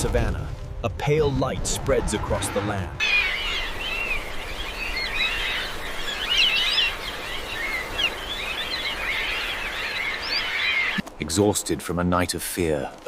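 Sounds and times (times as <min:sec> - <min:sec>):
birds chirping: 0:02.3 - 0:11.0.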